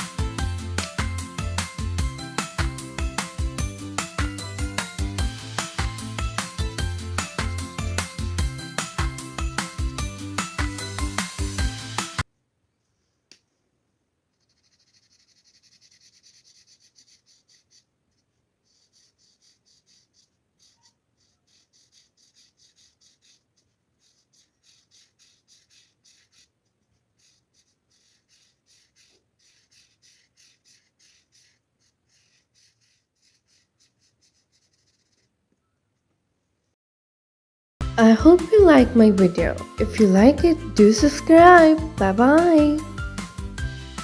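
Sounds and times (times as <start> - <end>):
marker scratching on paper: 0.0 - 12.2, 14.3 - 35.4.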